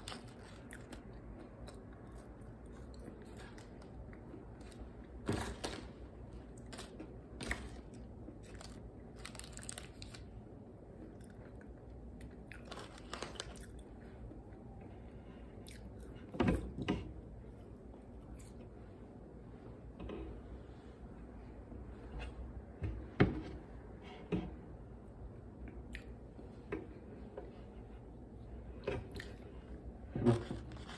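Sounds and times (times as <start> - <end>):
chewing and crunching fries: 0.0 - 14.8, 15.6 - 16.3, 18.0 - 18.8, 25.6 - 26.2, 29.1 - 29.5, 30.2 - 30.9.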